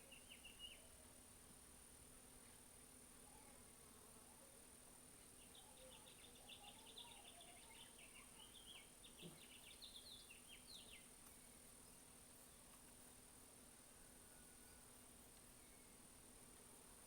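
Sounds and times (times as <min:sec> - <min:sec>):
faint bird chirping: 0:00.0 - 0:01.1, 0:05.1 - 0:16.2.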